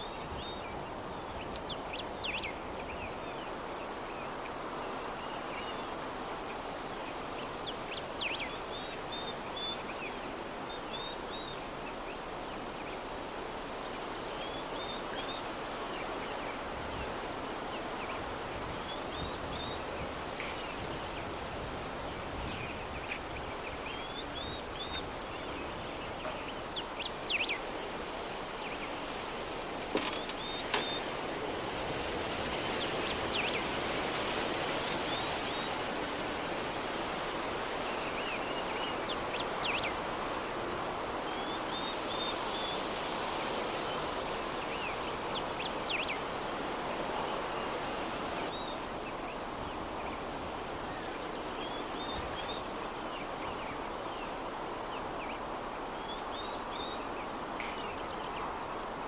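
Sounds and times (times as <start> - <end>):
soft breeze: 0.0 - 59.0
small birds chirping: 22.2 - 31.5.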